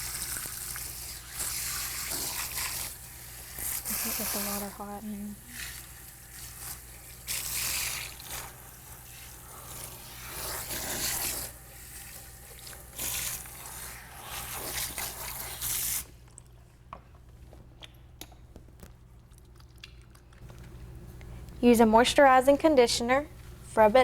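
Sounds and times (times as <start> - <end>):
water splashing over hair: 3.7 - 5.8.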